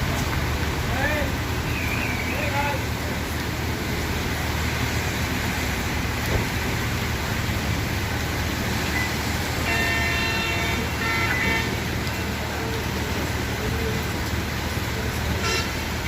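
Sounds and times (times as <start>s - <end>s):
road noise: 0.0s - 16.0s
vehicle horn: 9.6s - 11.9s, 15.4s - 15.8s.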